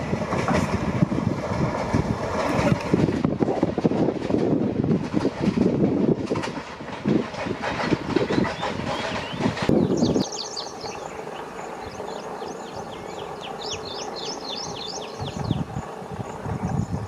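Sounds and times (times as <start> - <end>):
train wheels clattering: 0.0 - 16.9
birds chirping: 8.2 - 17.0.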